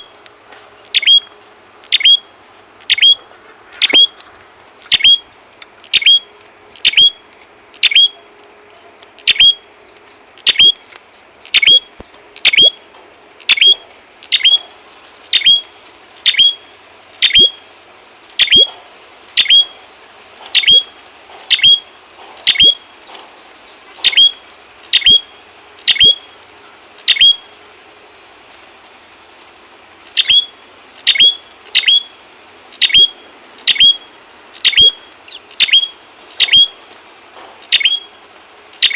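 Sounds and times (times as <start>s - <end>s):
songbird sharp chips: 30.0s - 37.0s.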